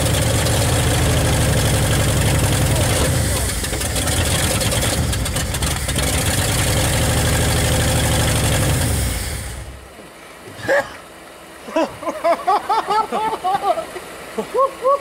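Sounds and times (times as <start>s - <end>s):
unmuffled car engine starting: 0.0s - 10.0s.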